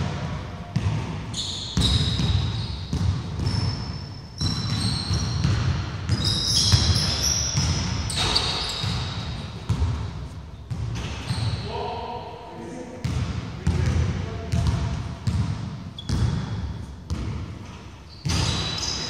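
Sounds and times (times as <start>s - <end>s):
basketball bouncing on wooden floor: 0.0s - 1.2s, 1.8s - 11.6s, 13.0s - 18.8s
sneaker squeaks: 0.8s - 11.9s, 14.6s - 19.0s.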